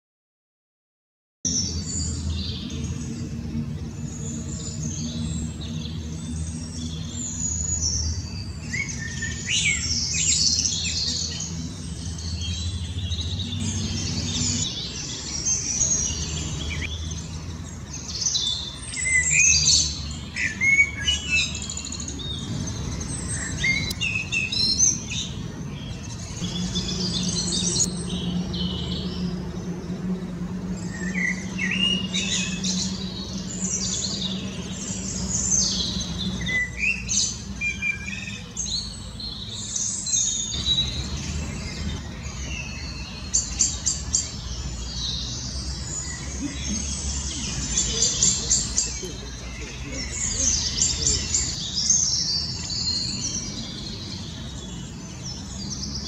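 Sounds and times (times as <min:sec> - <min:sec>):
birds chirping and singing: 0:01.5 - 0:56.0.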